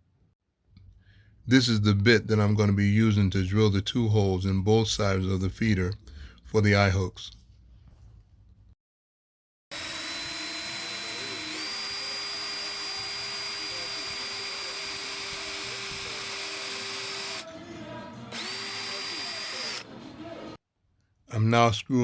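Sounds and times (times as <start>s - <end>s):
power drill boring into wood: 9.7s - 17.5s, 18.3s - 19.9s.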